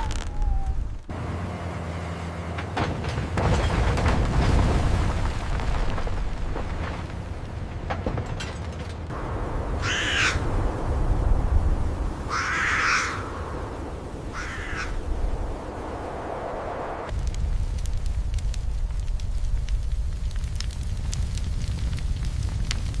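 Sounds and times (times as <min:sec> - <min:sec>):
bird calling: 0:09.8 - 0:10.5, 0:12.3 - 0:13.4, 0:14.2 - 0:15.3.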